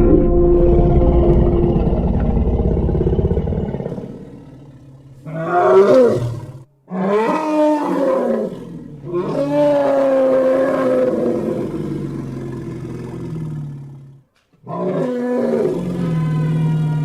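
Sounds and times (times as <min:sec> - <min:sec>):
dinosaur roars: 0:00.0 - 0:17.0.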